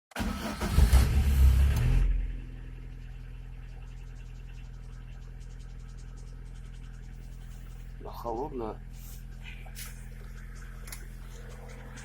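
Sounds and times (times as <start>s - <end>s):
car engine idling: 0.2s - 12.0s
fast engine ticking: 2.5s - 12.0s.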